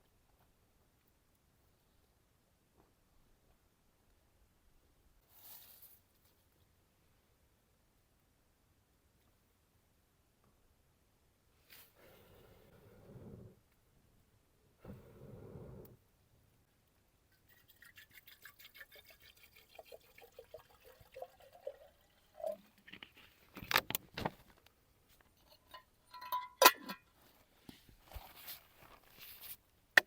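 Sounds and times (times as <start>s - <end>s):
cookware scraping: 25.4s - 27.0s.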